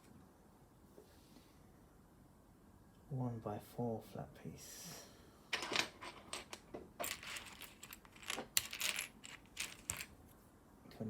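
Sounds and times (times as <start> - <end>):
plastic bricks clicking and rattling: 6.4 - 10.1.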